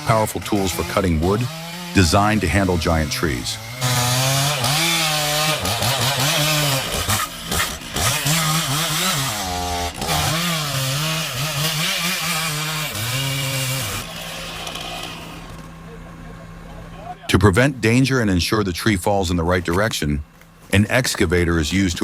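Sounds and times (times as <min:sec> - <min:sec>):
chainsaw cutting tree trunk: 0:00.0 - 0:15.9.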